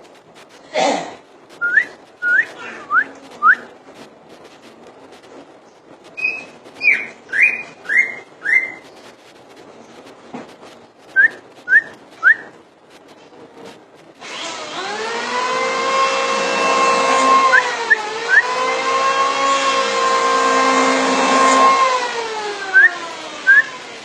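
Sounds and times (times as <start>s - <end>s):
bird whistled chirps: 1.6s - 3.7s, 6.2s - 8.9s, 11.1s - 12.5s
loud motor hum: 14.2s - 24.0s.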